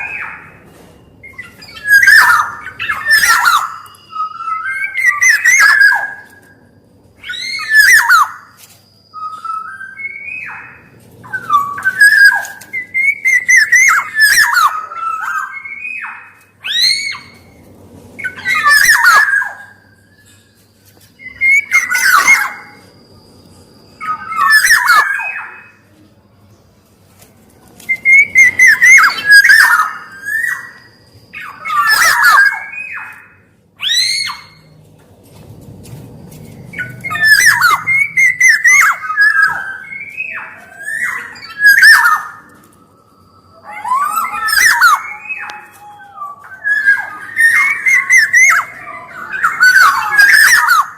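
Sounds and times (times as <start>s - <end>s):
oriole whistled song: 0.0s - 26.6s, 27.6s - 34.8s, 36.2s - 50.9s.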